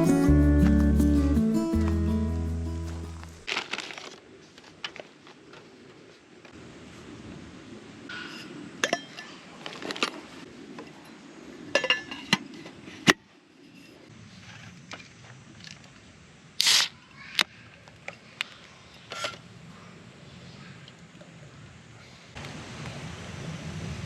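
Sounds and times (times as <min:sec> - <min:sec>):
camping gear clinking: 0:01.7 - 0:05.4, 0:08.2 - 0:10.3.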